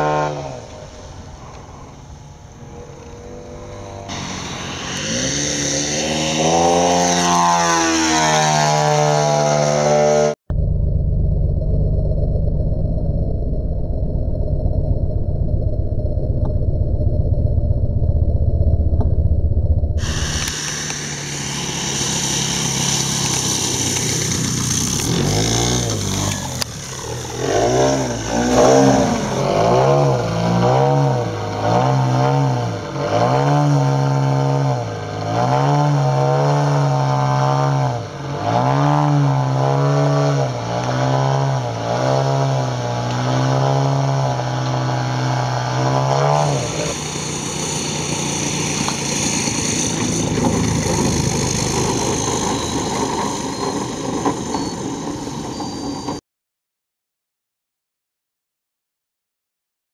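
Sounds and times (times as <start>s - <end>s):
model plane engine and propeller: 0.0s - 9.4s, 20.0s - 30.6s, 39.4s - 56.2s.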